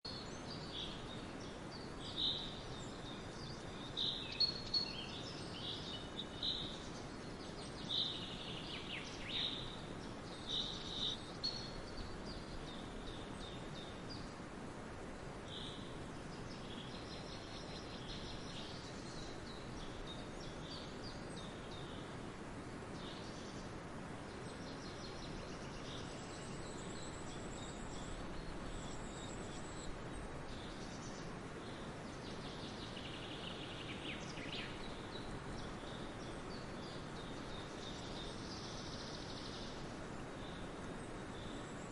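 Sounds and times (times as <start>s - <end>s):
birds calling and chirping: 0.1s - 14.6s
background hiss: 0.1s - 41.9s.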